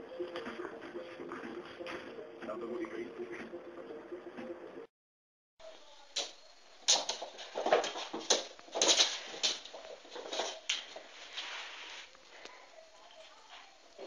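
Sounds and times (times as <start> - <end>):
irregular sharp knocks and clatter: 6.2 - 11.1.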